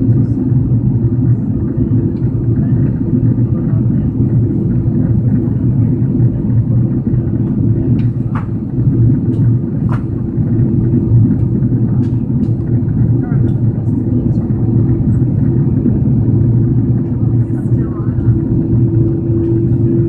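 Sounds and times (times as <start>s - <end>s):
aircraft cabin engine rumble: 0.0s - 20.0s.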